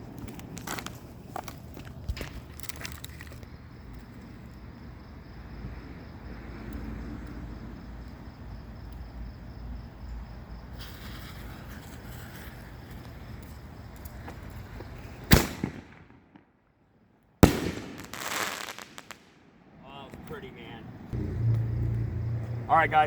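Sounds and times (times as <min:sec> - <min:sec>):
firework mortar bang: 0:15.3 - 0:16.4, 0:17.4 - 0:19.4
low outdoor rumble: 0:17.4 - 0:23.0.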